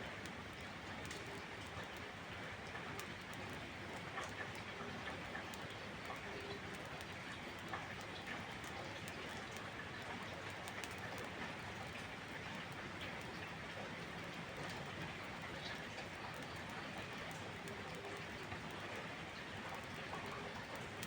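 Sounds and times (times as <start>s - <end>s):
campfire crackling: 0.0s - 21.0s
steady rain falling: 0.0s - 21.0s.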